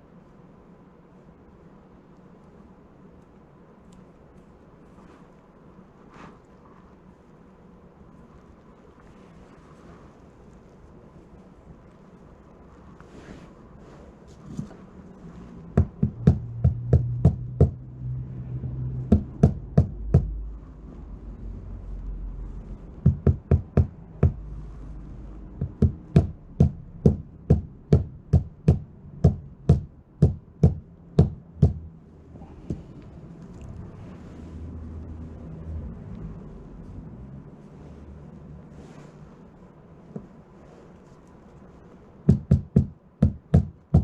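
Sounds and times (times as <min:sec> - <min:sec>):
faint low hum: 0:00.0 - 0:44.0
sharp knocks: 0:15.8 - 0:17.8, 0:19.1 - 0:20.4, 0:23.1 - 0:24.4, 0:25.6 - 0:31.9, 0:42.3 - 0:44.0.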